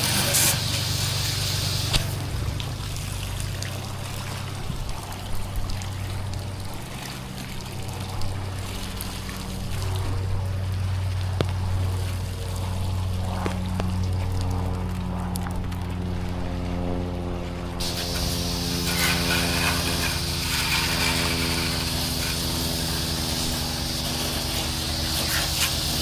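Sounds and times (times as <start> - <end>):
pressure washer engine running: 0.0 - 4.8, 16.3 - 26.0
water spraying and running off: 0.0 - 26.0.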